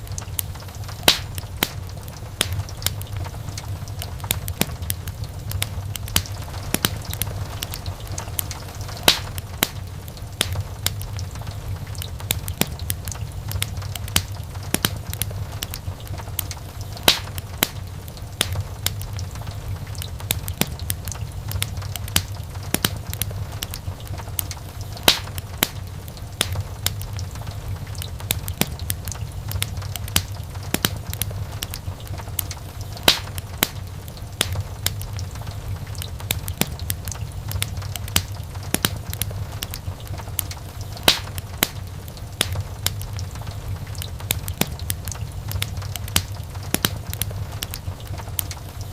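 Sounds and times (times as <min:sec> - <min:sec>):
wood fire crackling: 0:00.0 - 0:48.9
loud fire pop: 0:01.0 - 0:01.8, 0:06.2 - 0:09.8, 0:17.0 - 0:17.8, 0:25.0 - 0:25.8, 0:33.0 - 0:33.8, 0:41.0 - 0:41.8.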